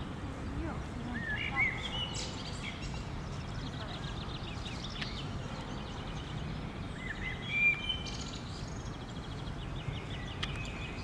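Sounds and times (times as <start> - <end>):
birds chirping and trilling: 0.3 - 11.0
bird whistled call: 7.0 - 8.3.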